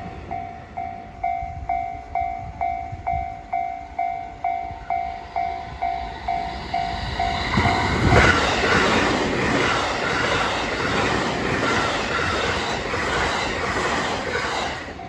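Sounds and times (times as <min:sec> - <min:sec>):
train wheels clattering over rail joints: 0:07.3 - 0:15.0.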